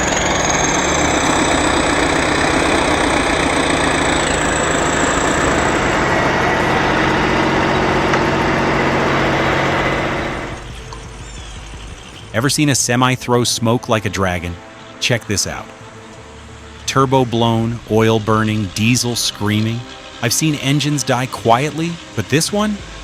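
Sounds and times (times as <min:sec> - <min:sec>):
heavy vehicle engine running: 0:00.0 - 0:23.0
thin high whine: 0:00.0 - 0:23.0.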